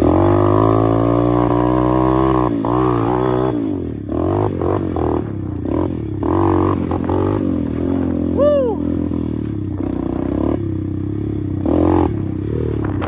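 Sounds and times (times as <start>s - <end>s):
motorbike engine revving: 0.0s - 13.0s.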